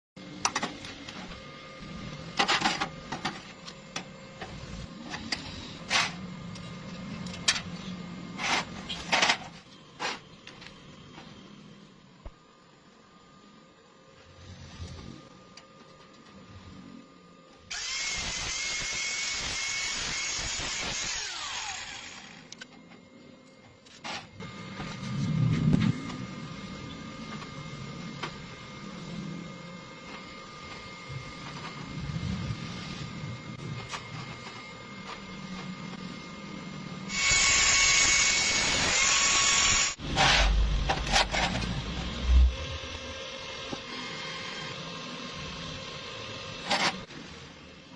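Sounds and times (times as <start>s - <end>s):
steady low hum: 0.2s - 38.8s, 39.8s - 47.9s
welding crackle and clicks: 17.7s - 23.0s.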